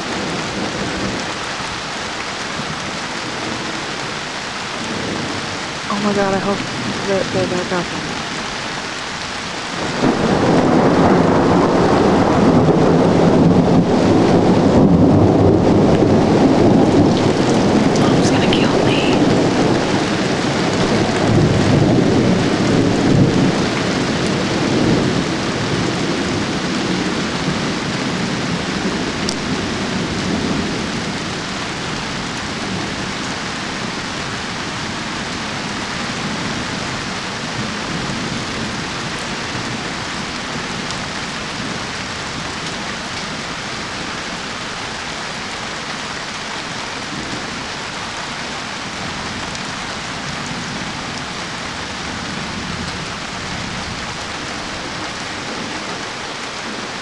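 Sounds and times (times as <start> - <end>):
steady downpour of rain: 0.0 - 57.0
thunder rumbling: 4.8 - 44.6.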